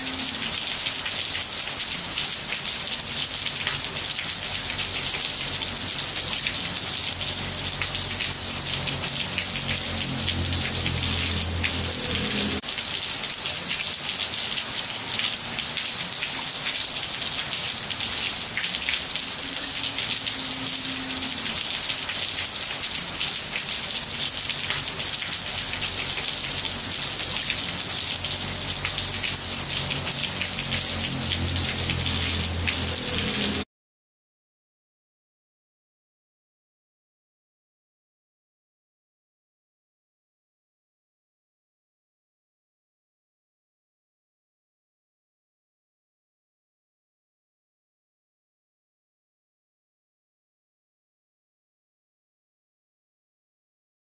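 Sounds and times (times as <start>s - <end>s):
rain on roof tiles: 0.0s - 33.7s.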